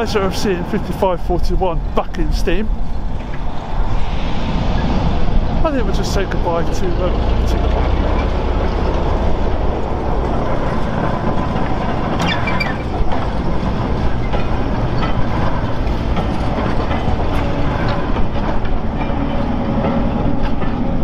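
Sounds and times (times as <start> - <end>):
train wheels rumbling on rails: 0.0 - 21.0
high squeal: 3.4 - 9.2, 12.1 - 13.2.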